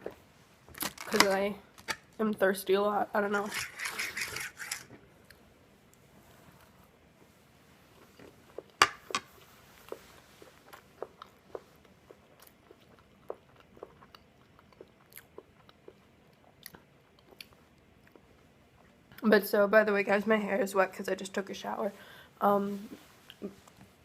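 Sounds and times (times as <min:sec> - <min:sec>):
person chewing crunchy waffle: 0:09.8 - 0:18.9.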